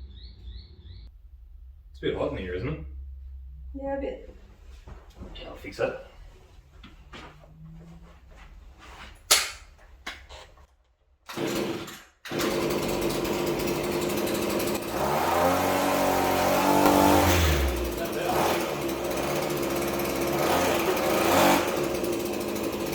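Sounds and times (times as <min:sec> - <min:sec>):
small two-stroke engine revving: 0:11.3 - 0:22.9.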